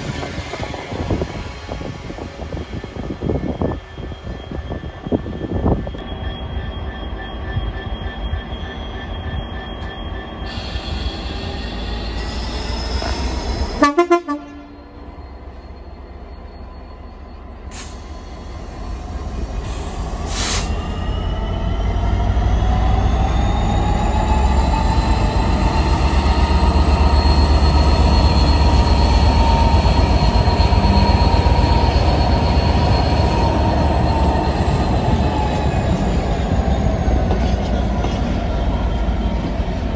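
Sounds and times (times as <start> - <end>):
train running past with whine: 0.0 - 39.9
train horn: 13.8 - 15.1.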